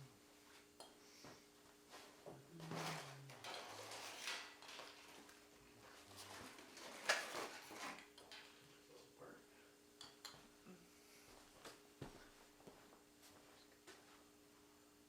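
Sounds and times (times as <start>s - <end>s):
faint steady hum: 0.0s - 15.0s
tools clattering in a toolbox: 2.7s - 5.4s, 6.1s - 8.6s.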